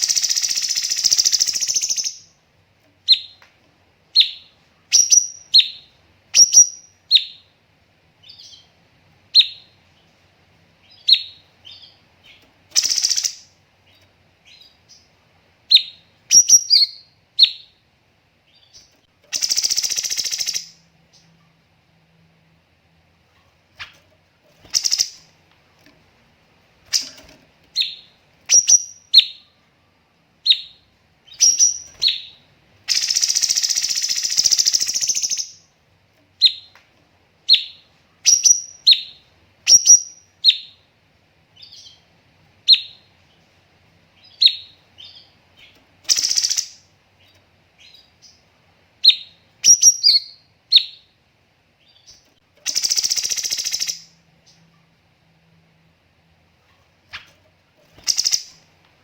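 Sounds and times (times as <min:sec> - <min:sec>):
bird sharp chirps: 0:00.0 - 0:02.3, 0:04.2 - 0:07.5, 0:10.8 - 0:15.1, 0:15.7 - 0:17.8, 0:18.5 - 0:21.3, 0:24.6 - 0:25.3, 0:26.9 - 0:29.5, 0:30.4 - 0:35.6, 0:44.2 - 0:46.9, 0:49.0 - 0:51.1, 0:51.8 - 0:54.6, 0:57.9 - 0:58.6
harsh bird bursts: 0:24.7 - 0:25.3.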